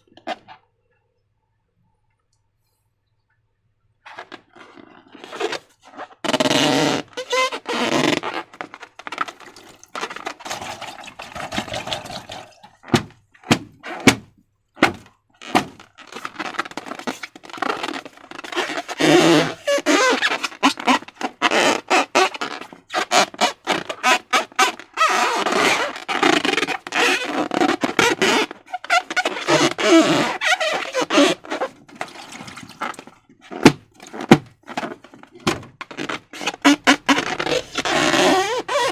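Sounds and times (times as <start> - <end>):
wet slime squishing: 7.3 - 21.2, 29.0 - 38.9.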